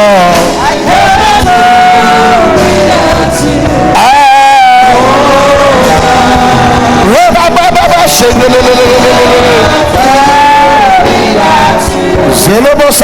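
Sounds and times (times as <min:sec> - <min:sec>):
person singing long notes: 0:00.0 - 0:12.4
worship music: 0:00.0 - 0:13.0.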